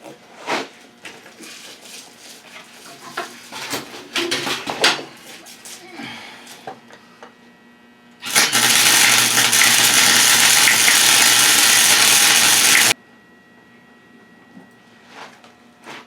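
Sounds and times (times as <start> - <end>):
electric arc welder crackling hiss: 8.2 - 13.0.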